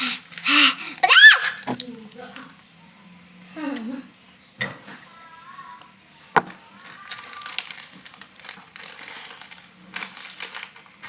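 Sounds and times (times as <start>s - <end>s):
crunchy snack crackling: 6.8s - 10.9s.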